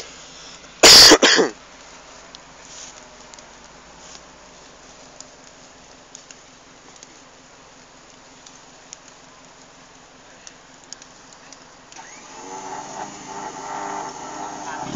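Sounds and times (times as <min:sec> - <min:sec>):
small clicks: 0:05.2 - 0:07.2, 0:07.8 - 0:12.4
car engine straining and revving: 0:12.0 - 0:14.9.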